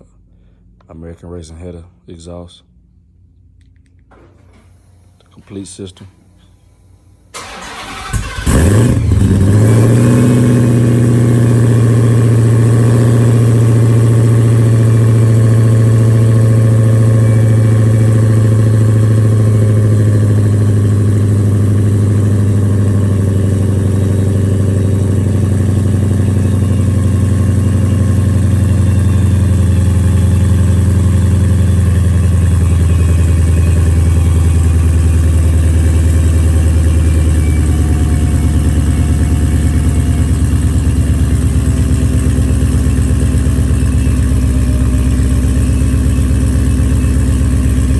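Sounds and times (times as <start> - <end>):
car engine revving and idling: 7.4 - 47.9.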